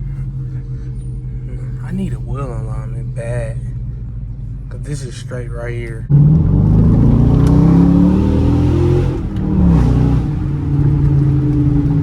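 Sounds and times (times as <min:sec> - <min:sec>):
car engine accelerating hard: 0:06.1 - 0:12.0.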